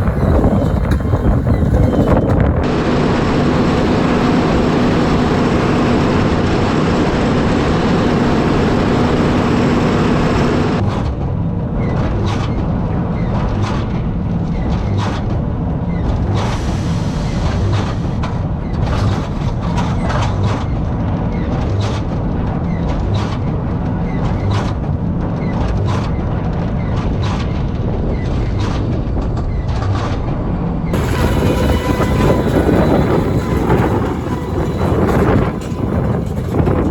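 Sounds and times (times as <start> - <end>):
tractor engine hum: 0.0 - 10.8, 31.0 - 36.9.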